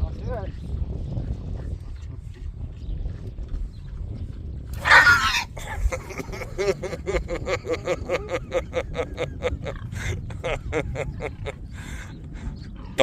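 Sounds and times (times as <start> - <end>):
pig making short calls: 4.8 - 5.6
pig squealing: 4.8 - 5.9.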